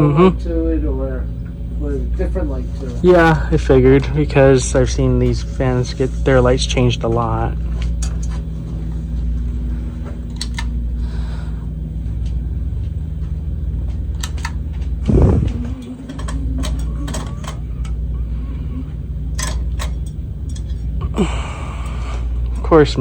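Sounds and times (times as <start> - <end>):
ceiling fan motor humming: 0.0 - 23.0
scattered clicks: 13.9 - 18.0.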